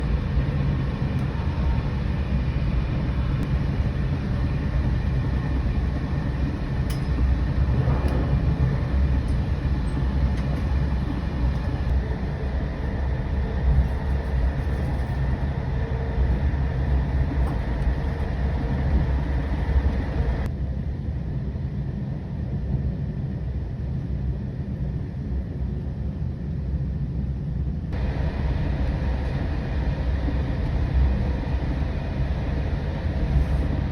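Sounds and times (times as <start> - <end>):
train running gear rumble: 0.0 - 20.6, 27.7 - 33.9.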